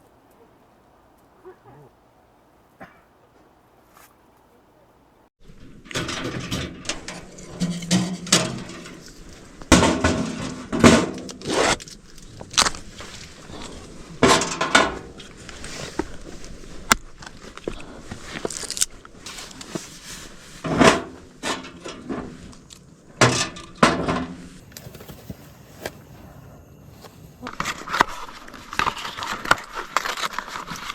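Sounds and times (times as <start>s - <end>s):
objects being handled: 5.7s - 26.1s, 27.0s - 30.9s.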